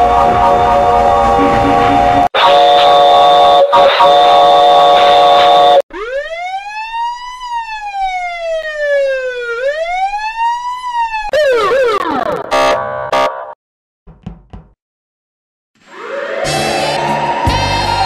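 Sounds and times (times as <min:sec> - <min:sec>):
loud steady chord of tones: 0:00.0 - 0:02.3
distorted burst of stacked tones: 0:00.0 - 0:02.6
police siren wailing: 0:00.0 - 0:13.3, 0:15.8 - 0:18.0.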